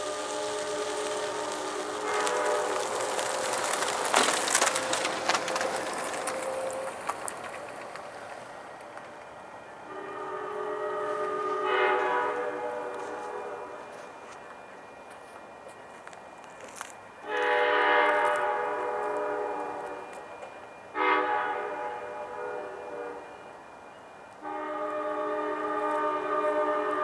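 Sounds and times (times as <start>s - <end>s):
locomotive air horn chord: 0.0s - 3.5s, 9.9s - 14.1s, 17.2s - 20.2s, 20.9s - 23.4s, 24.4s - 27.0s
passing train clattering: 0.0s - 27.0s.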